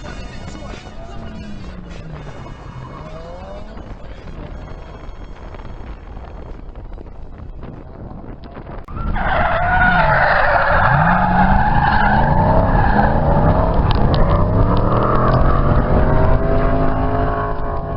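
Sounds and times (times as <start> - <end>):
tyres squealing: 0.0 - 4.8
car engine revving: 0.0 - 6.0, 8.9 - 17.9.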